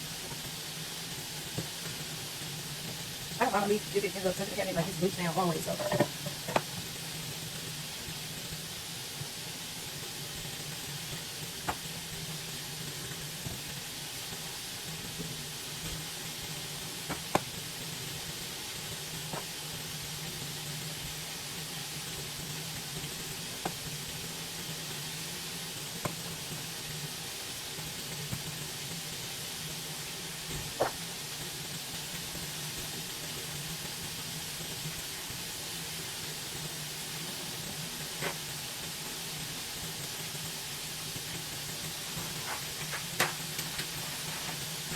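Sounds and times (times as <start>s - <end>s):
meat sizzling in a frying pan: 0.0s - 44.9s
sharp pops: 11.7s - 11.9s, 17.0s - 17.6s, 30.5s - 31.1s.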